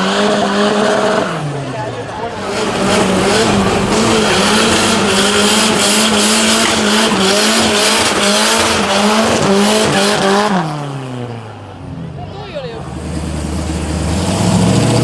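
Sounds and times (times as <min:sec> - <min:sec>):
car engine revving high: 0:00.0 - 0:15.0
tyres squealing: 0:00.1 - 0:10.6.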